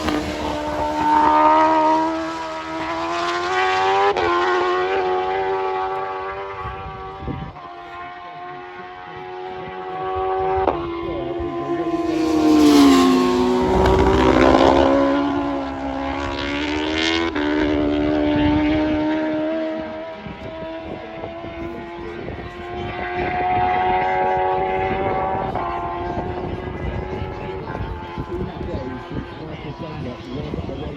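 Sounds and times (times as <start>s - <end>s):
superbike engines passing: 0.0s - 3.9s, 9.8s - 20.0s
faint engine drone: 10.0s - 18.3s.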